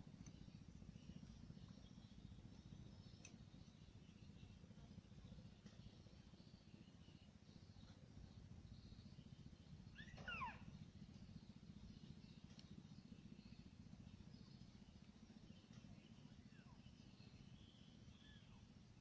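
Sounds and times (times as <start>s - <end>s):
low steady rumble: 0.0s - 19.0s
bird calling: 9.9s - 10.7s
faint high calls: 9.9s - 10.7s.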